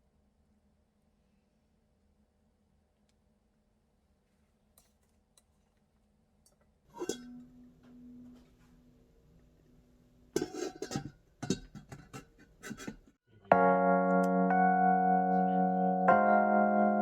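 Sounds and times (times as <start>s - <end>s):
dishes and cutlery clinking: 7.0s - 8.4s, 10.4s - 13.1s.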